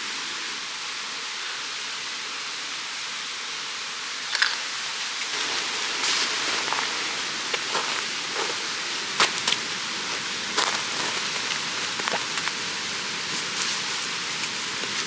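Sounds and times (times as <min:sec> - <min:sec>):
rustling and crunching: 0:04.3 - 0:15.0
stream rushing: 0:04.3 - 0:15.0.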